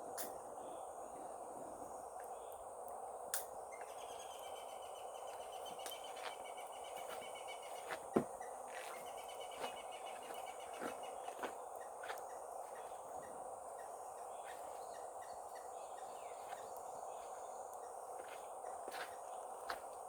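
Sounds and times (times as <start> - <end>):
insects chirping in trills: 0.0 - 20.0.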